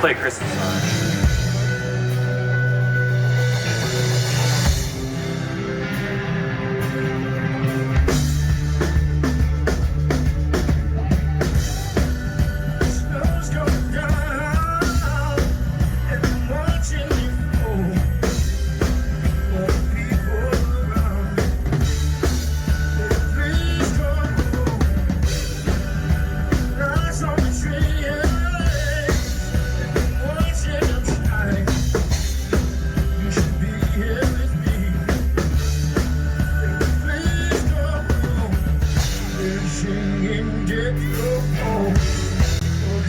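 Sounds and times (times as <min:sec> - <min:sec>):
drum kit beat: 0:00.0 - 0:39.9, 0:41.1 - 0:43.0
bass: 0:00.0 - 0:43.0
live band through pa: 0:00.0 - 0:43.0
person singing: 0:11.0 - 0:18.6, 0:19.2 - 0:43.0.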